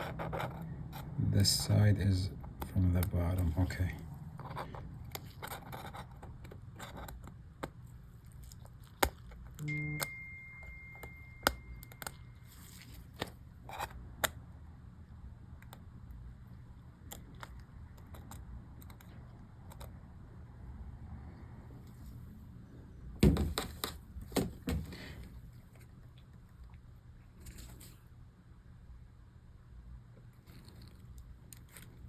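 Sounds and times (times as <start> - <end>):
faint high steady tone: 9.6 - 13.1.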